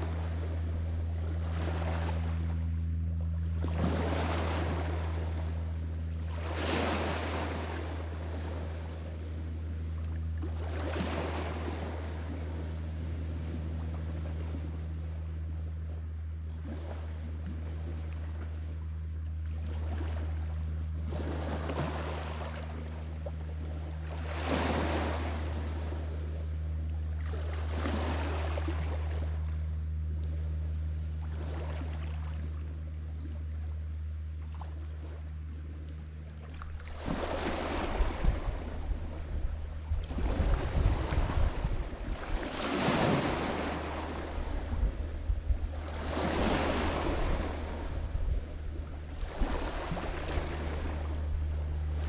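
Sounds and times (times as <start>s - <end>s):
steady low hum: 0.0s - 52.0s
waves washing onto shore: 3.6s - 5.6s, 6.2s - 9.4s, 10.4s - 14.7s, 24.0s - 26.2s, 27.2s - 29.4s, 36.6s - 52.0s
wind buffeting microphone: 36.9s - 52.0s.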